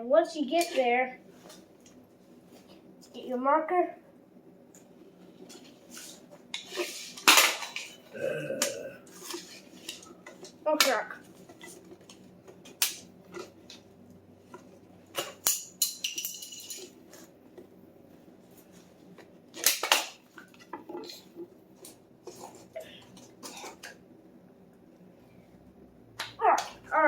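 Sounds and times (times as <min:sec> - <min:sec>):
hand tools clinking and knocking: 0:15.2 - 0:17.2.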